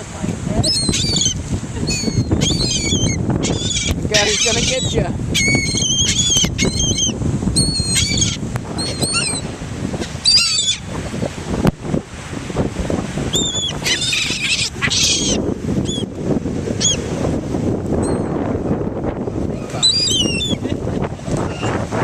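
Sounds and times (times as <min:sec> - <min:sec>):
seagulls calling: 0:00.6 - 0:10.9, 0:13.3 - 0:16.1, 0:19.6 - 0:21.8.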